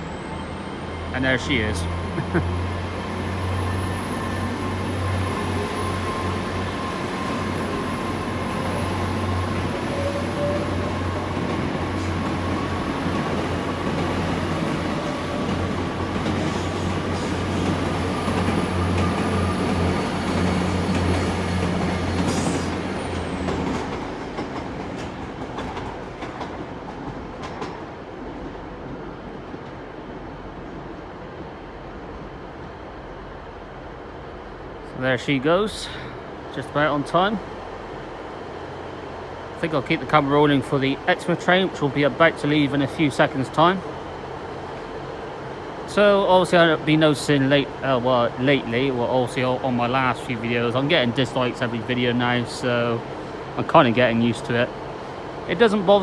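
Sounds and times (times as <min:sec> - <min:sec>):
train low drone: 0:00.0 - 0:56.0
train wheels clicking over rail joints: 0:11.1 - 0:28.6.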